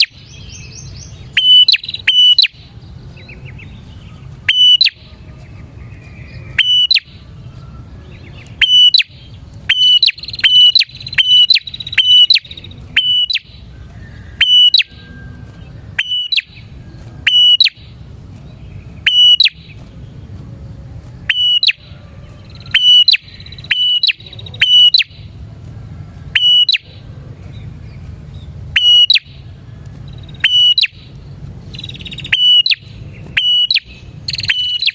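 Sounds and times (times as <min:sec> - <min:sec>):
bird calling sharply: 0:00.0 - 0:05.2, 0:06.1 - 0:07.2, 0:08.4 - 0:15.1, 0:16.0 - 0:18.0, 0:19.0 - 0:19.8, 0:21.3 - 0:25.3, 0:26.3 - 0:27.1, 0:28.7 - 0:29.5, 0:30.2 - 0:31.1, 0:31.7 - 0:34.9.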